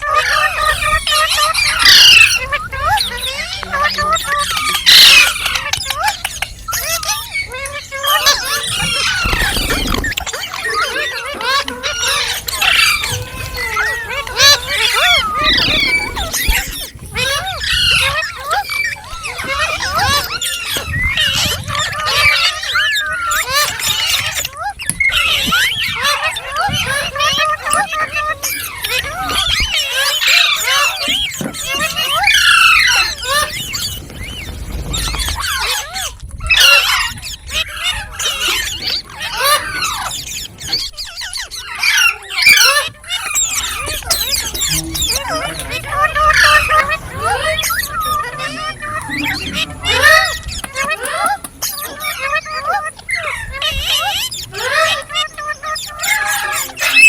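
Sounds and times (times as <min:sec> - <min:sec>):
parakeet chattering: 0:14.4 - 0:18.1, 0:43.4 - 0:57.0.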